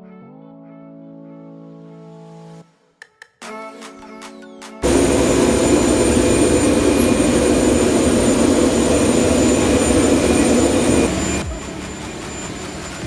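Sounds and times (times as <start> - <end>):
high turbine whine: 4.8 - 13.0
jet turbine rush: 4.8 - 13.0.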